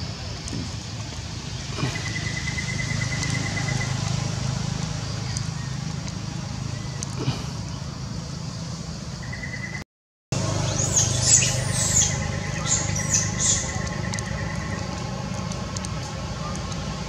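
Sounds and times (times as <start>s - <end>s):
small birds chirping: 0.0s - 9.8s, 10.4s - 17.0s.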